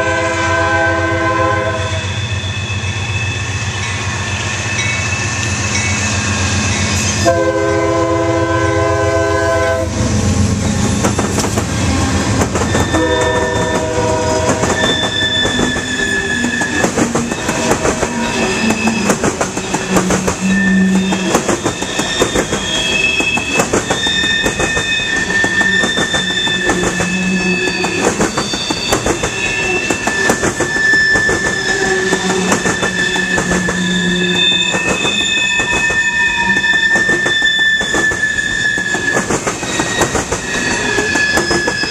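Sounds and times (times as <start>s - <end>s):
locomotive air horn: 0.0s - 2.5s, 7.2s - 10.4s, 11.7s - 16.8s, 17.4s - 21.5s, 24.0s - 28.0s, 29.4s - 39.3s
steel wheels squealing on rails: 0.0s - 41.9s
train wheels clacking over rail joints: 10.7s - 41.9s.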